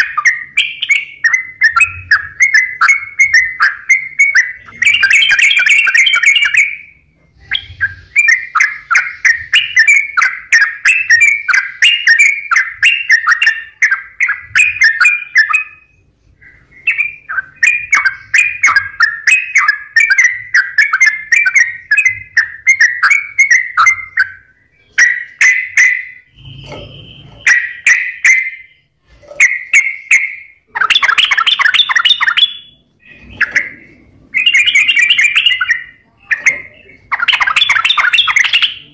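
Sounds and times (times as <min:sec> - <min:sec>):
bulbul song: 0:00.0 - 0:38.9.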